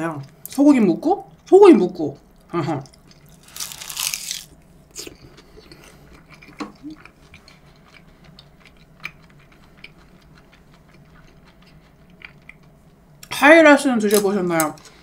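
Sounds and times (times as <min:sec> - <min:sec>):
person chewing: 0:02.2 - 0:13.3.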